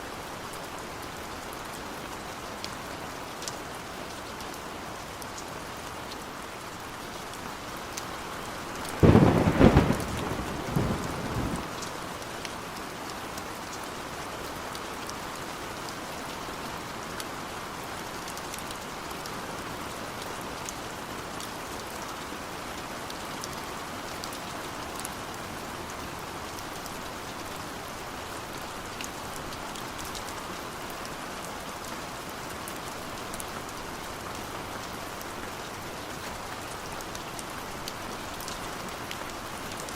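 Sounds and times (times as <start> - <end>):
heavy rainfall: 0.0 - 39.9
thunderclap: 9.0 - 11.8.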